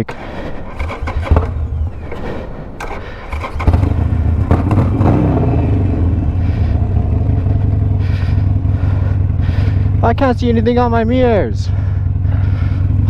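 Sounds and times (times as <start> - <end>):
short clatters: 0.0 - 5.2
motorcycle engine idling: 0.0 - 13.0.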